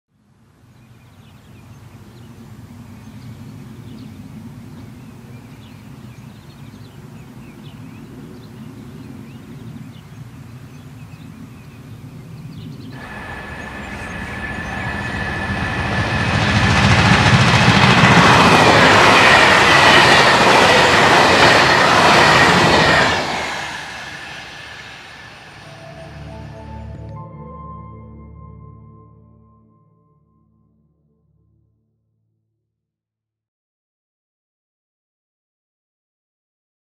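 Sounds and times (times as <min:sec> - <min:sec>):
diesel train rumbling past: 0:12.9 - 0:28.8
train wheels clattering: 0:13.0 - 0:25.6.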